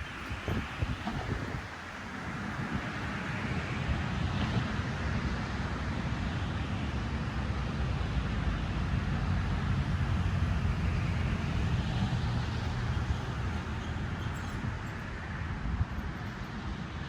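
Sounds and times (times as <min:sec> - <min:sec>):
wind buffeting microphone: 0:00.0 - 0:05.0, 0:08.9 - 0:17.0.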